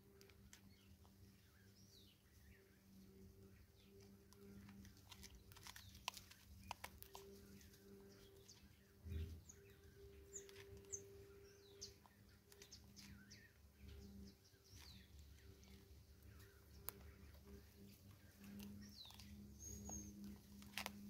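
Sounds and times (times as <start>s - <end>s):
faint bird chirps: 0.0s - 21.0s
small clicks: 3.8s - 8.6s, 10.3s - 21.0s.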